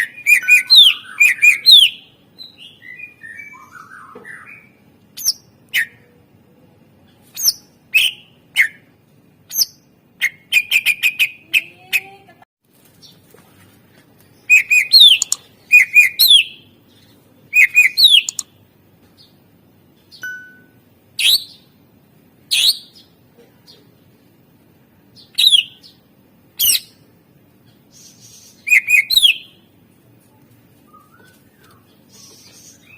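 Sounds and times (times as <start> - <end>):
bird singing: 0.0 - 6.1, 14.4 - 18.5, 25.2 - 26.0, 27.7 - 29.6.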